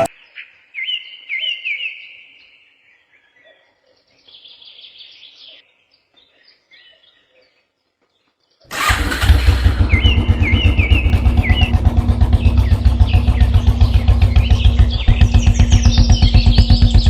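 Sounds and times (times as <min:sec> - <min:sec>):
faint bird chirps: 0:09.7 - 0:17.0
loud rhythmic pulsing: 0:09.7 - 0:17.0.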